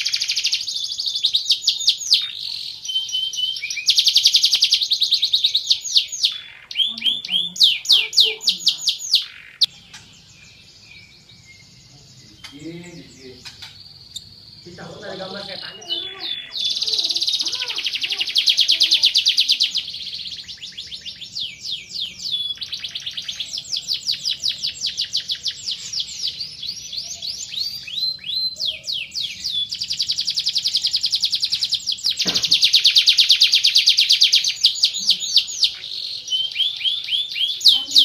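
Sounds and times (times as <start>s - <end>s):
canary singing trills: 0.0s - 38.0s.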